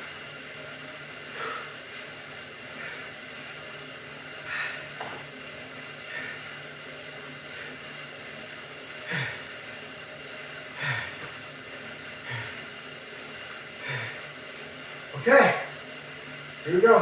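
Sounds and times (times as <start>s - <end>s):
man breathing hard with groans: 4.3s - 5.0s, 9.0s - 9.7s, 10.7s - 11.4s, 12.2s - 12.8s, 13.8s - 14.4s.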